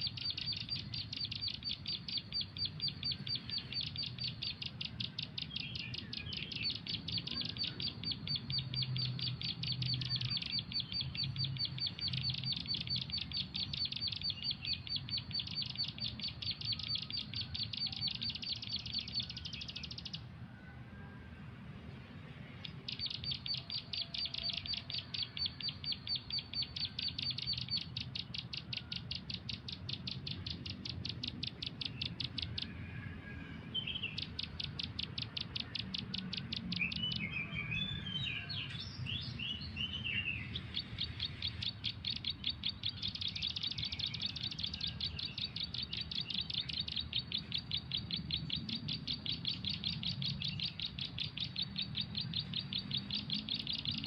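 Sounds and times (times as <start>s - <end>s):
bird chirping rapidly: 0.0s - 20.3s, 22.4s - 54.0s
bird twittering: 0.0s - 20.3s, 22.6s - 54.0s.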